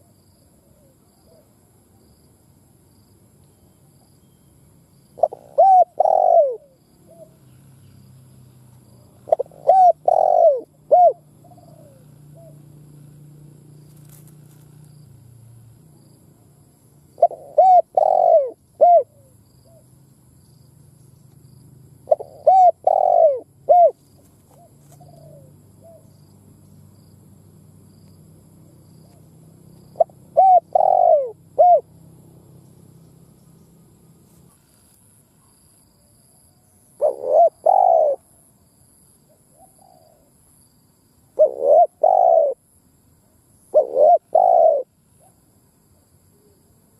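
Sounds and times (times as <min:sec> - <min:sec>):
dove cooing: 0:05.2 - 0:07.4, 0:09.0 - 0:12.8, 0:17.1 - 0:19.8, 0:22.0 - 0:26.2, 0:28.9 - 0:31.9, 0:37.0 - 0:38.2, 0:39.5 - 0:40.3, 0:41.4 - 0:42.6, 0:43.7 - 0:45.4.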